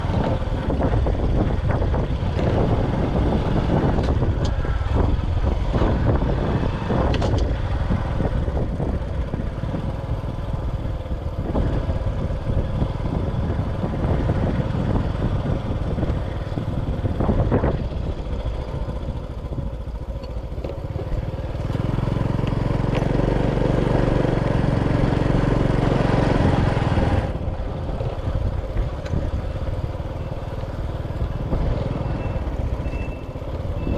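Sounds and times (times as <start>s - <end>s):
motorcycle riding: 0.0s - 33.9s
road and wind rushing noise: 0.0s - 33.9s
steady engine hum: 0.0s - 33.9s.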